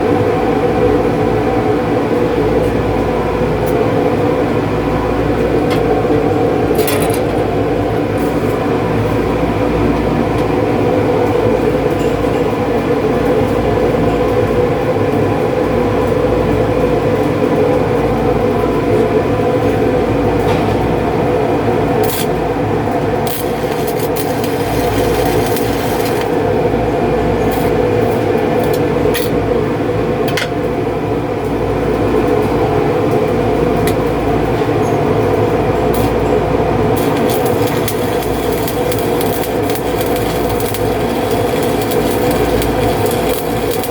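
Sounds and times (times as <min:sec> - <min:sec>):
machinery drone: 0:18.2 - 0:43.9
hissing crackle: 0:23.2 - 0:26.4, 0:37.0 - 0:43.9.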